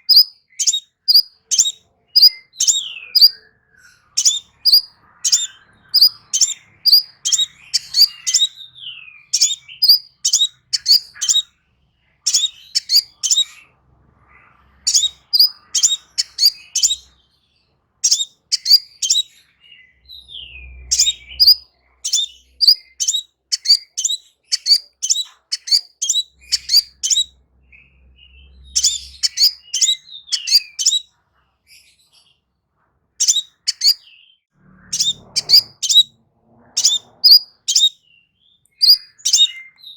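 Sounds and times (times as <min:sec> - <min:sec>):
bird high sharp chips: 0:00.0 - 0:03.4, 0:04.2 - 0:08.6, 0:09.4 - 0:11.4, 0:12.3 - 0:13.5, 0:21.0 - 0:27.2, 0:33.2 - 0:34.0.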